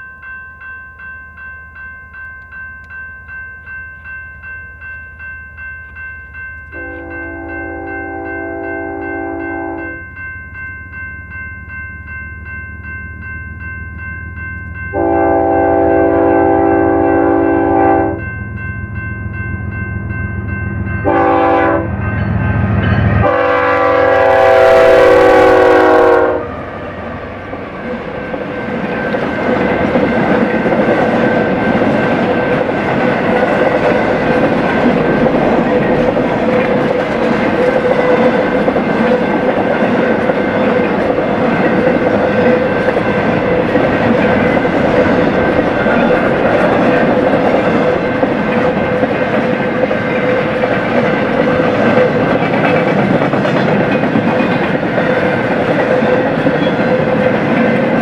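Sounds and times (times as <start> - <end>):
locomotive air horn blasts: 6.8 - 10.0, 15.0 - 18.2, 21.0 - 21.9, 23.2 - 26.6
train wheels rumbling on rail: 20.0 - 58.0.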